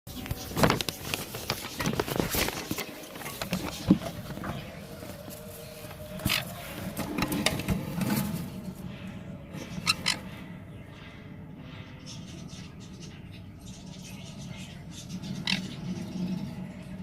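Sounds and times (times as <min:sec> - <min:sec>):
parrot chicks scratchy calls: 0:09.6 - 0:10.5, 0:12.2 - 0:16.6.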